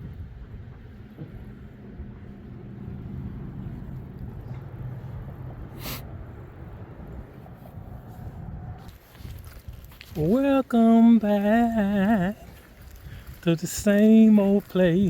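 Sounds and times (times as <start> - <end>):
van engine and road rumble: 0.0 - 15.0
brief hiss: 5.8 - 6.0.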